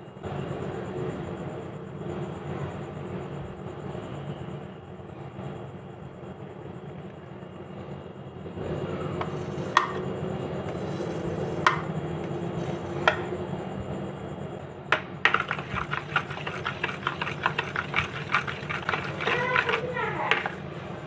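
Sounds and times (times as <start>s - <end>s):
steady low hum: 0.0s - 21.0s
kitchen utensils clinking: 15.3s - 20.7s.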